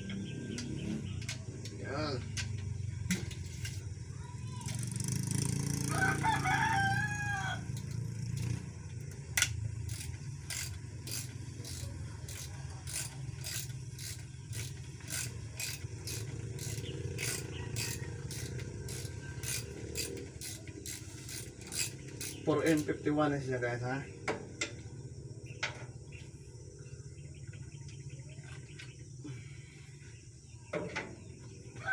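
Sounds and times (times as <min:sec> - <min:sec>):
hand tools scraping metal: 0:03.1 - 0:03.9, 0:09.4 - 0:23.0.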